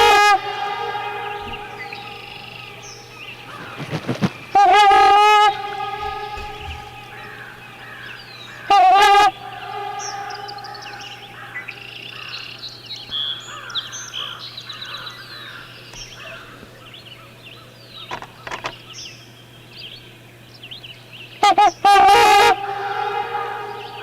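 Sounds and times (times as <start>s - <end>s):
swan horn-like call: 0.0s - 12.6s, 21.4s - 24.0s
steady low hum: 0.0s - 13.1s, 19.2s - 24.0s
songbirds chirping: 0.0s - 24.0s.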